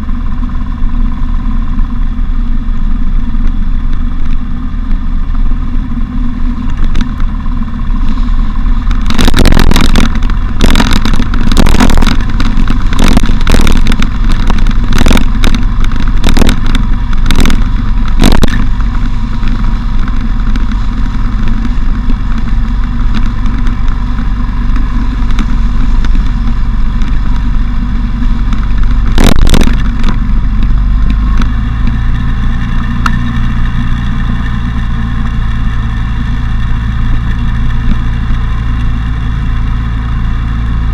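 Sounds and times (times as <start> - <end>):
motorcycle engine running: 0.0 - 40.9
road and wind noise: 0.0 - 40.9
sharp knocks and thumps: 8.1 - 33.8.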